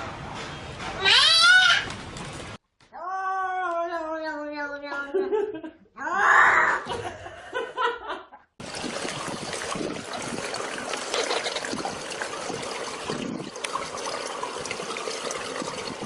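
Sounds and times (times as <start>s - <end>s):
running water trickling and splashing: 8.6s - 16.0s.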